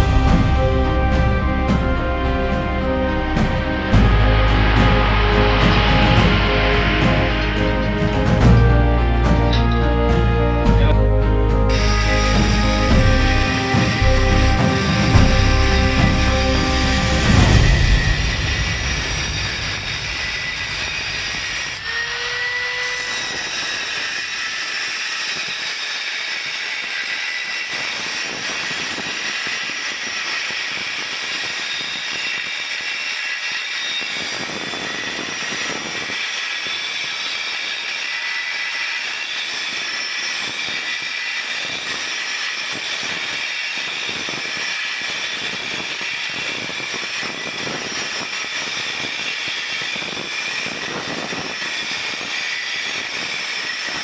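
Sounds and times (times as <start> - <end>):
hissing machine noise: 0.0 - 10.6, 11.7 - 25.0.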